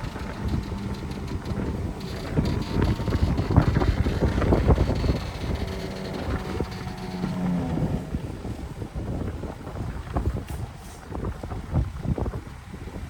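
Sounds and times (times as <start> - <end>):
machinery clanks and knocks: 0.0 - 8.0
diesel engine rumbling: 0.0 - 9.9.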